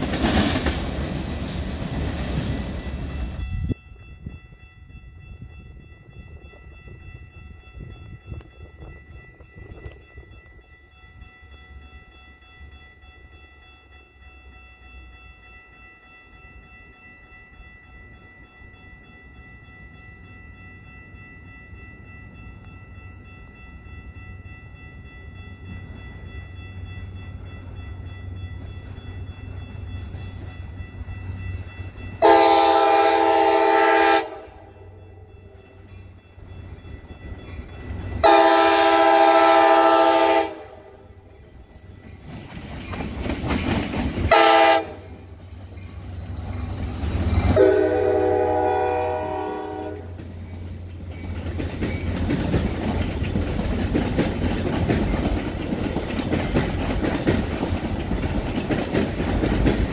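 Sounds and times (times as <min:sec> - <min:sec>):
train approaching rumble: 0:00.0 - 0:59.9
high ringing held tones: 0:02.5 - 0:43.1.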